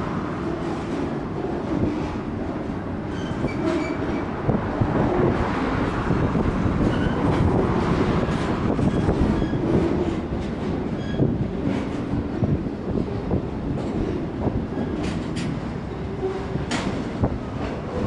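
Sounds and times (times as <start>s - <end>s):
train wheels running on rails: 0.0s - 18.0s
high wheel squeals: 8.8s - 9.7s.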